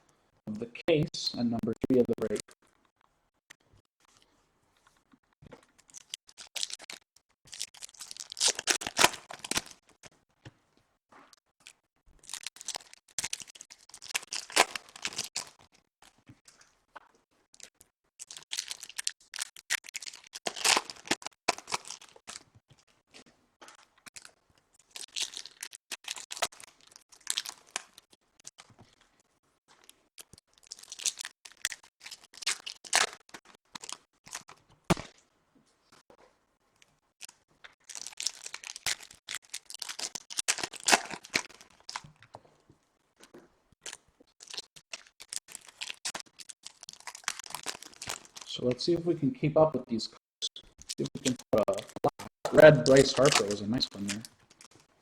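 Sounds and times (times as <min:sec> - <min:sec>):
foil packs tearing and crinkling: 0:05.9 - 0:09.9, 0:12.2 - 0:16.2, 0:17.6 - 0:22.5, 0:23.7 - 0:28.6, 0:29.8 - 0:35.2, 0:37.2 - 0:42.2, 0:43.8 - 0:48.5, 0:50.9 - 0:54.8.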